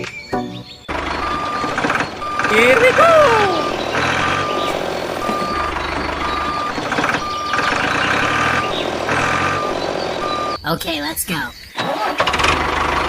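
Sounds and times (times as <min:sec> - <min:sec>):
reversing alarm beeping: 0:00.8 - 0:10.7.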